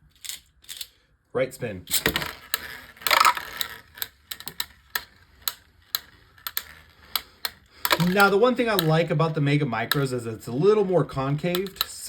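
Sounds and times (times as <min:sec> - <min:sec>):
spinning tops rattling and scraping: 0:00.0 - 0:01.0, 0:01.9 - 0:12.0
sharp plastic clicks: 0:01.9 - 0:10.2, 0:11.2 - 0:12.0.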